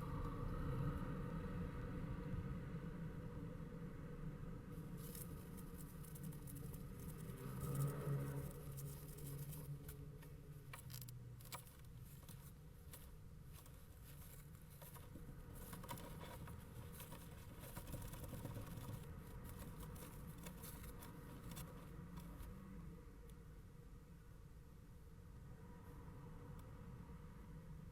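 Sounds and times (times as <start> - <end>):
low steady hum: 0.0 - 27.9
bird scratching in nest box: 10.8 - 22.4.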